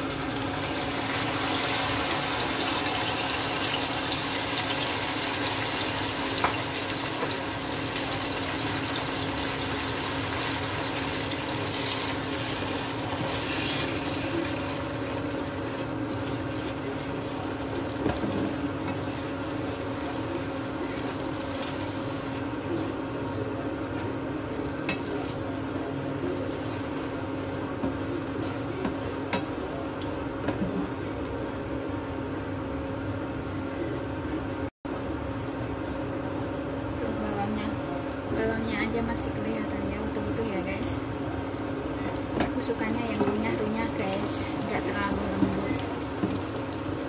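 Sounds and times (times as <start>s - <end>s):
chili paste sizzling in oil: 0.0s - 28.6s.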